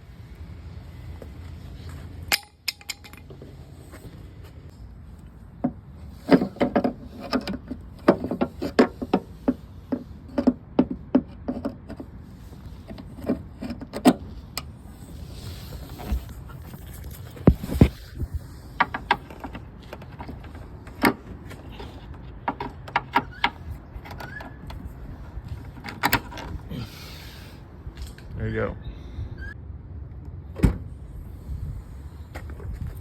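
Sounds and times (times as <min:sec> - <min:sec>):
metal parts and tools clinking: 0:02.3 - 0:03.6.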